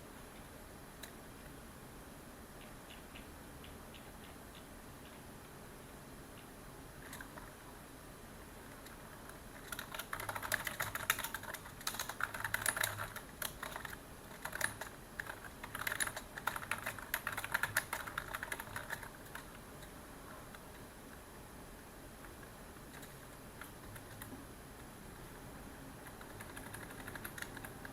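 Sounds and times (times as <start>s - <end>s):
computer keyboard typing: 7.0s - 7.5s, 8.7s - 20.8s, 22.2s - 24.4s, 26.0s - 27.9s.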